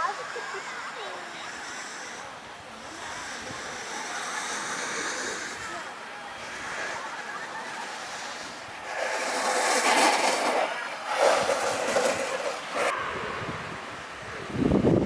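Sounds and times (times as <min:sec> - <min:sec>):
snowboard edge scraping snow: 0:02.8 - 0:12.9.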